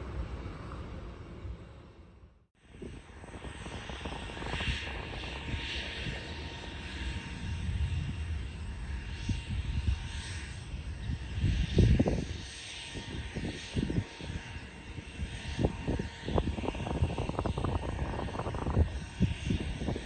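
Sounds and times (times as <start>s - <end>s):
gusty wind buffeting: 0.0s - 20.0s
jet engines rumbling: 0.0s - 20.0s.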